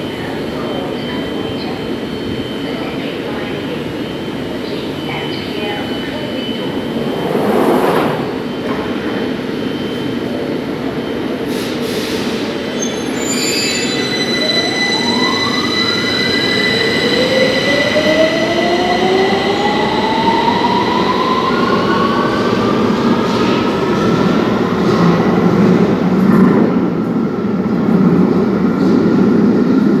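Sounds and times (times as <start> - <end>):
wheels rumbling on rails: 6.0 - 9.2
steady high whistle: 13.1 - 18.5.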